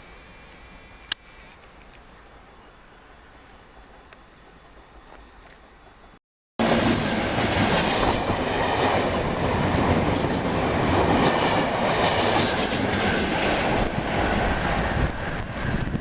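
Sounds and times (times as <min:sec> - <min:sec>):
rhythmic rail clicks: 0:06.6 - 0:16.0
train wheels rumbling on rails: 0:06.6 - 0:16.0.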